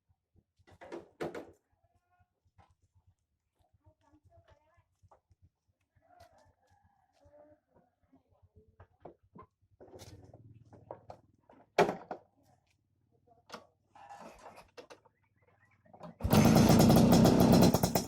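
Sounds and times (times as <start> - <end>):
scooter engine running hard: 16.2 - 18.0.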